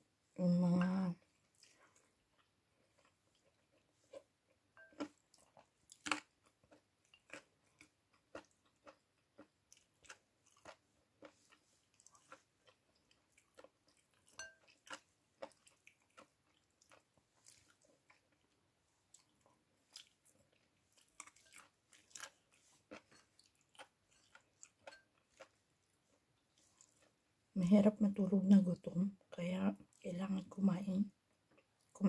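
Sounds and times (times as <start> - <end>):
chewing and mouth smacks: 1.2 - 4.3, 4.9 - 27.2.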